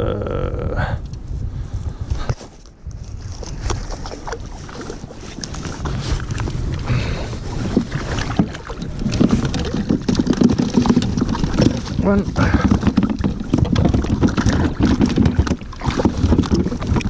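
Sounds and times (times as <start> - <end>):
wind rumble on microphone: 0.0 - 17.0
fish knocking against kayak: 7.6 - 17.0
fish splashing in water: 7.7 - 17.0.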